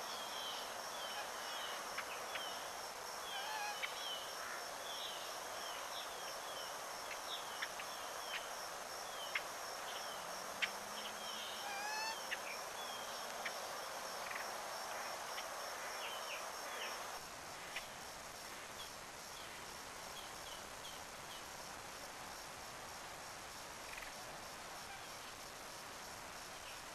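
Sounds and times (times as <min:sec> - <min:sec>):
wild birds chirping: 0:00.0 - 0:18.0
insect trill: 0:00.0 - 0:26.9.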